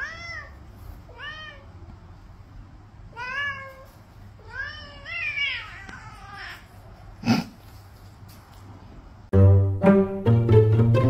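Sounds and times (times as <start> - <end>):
cat meowing: 0.0 - 1.8, 3.1 - 6.8.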